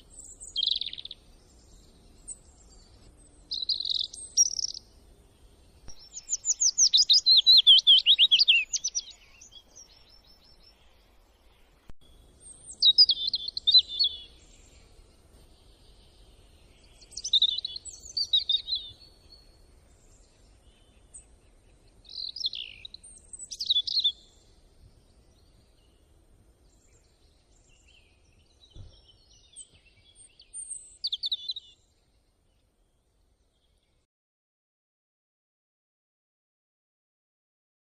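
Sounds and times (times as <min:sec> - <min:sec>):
faint outdoor background noise: 0:00.0 - 0:34.1
bird trilling and chirping: 0:00.3 - 0:01.2, 0:03.5 - 0:04.8, 0:05.9 - 0:10.3, 0:12.5 - 0:14.4, 0:17.0 - 0:19.0, 0:22.1 - 0:24.3.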